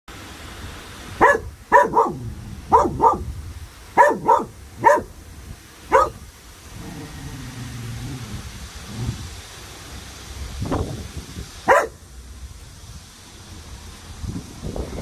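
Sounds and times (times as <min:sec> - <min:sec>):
dog barking: 0:01.2 - 0:03.3, 0:04.0 - 0:05.1, 0:05.9 - 0:06.2, 0:11.7 - 0:12.0.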